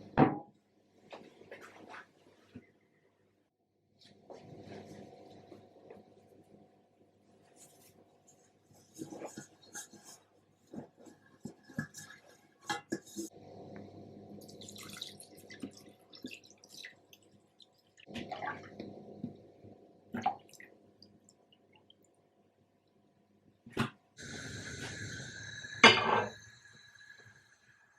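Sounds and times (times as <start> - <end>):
water running: 14.4 - 22.1.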